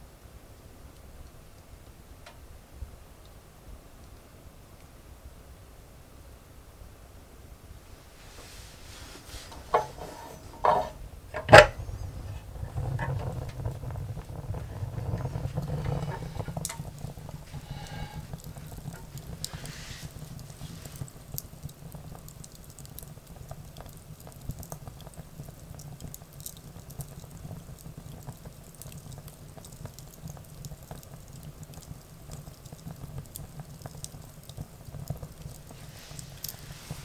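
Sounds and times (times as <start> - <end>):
soft hiss: 0.0 - 37.0
low fire rumble: 7.4 - 37.0
wood fire crackling and popping: 7.9 - 37.0.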